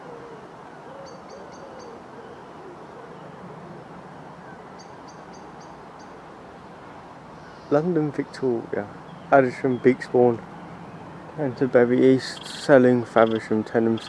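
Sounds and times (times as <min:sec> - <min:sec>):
bird cooing: 0:00.0 - 0:05.4.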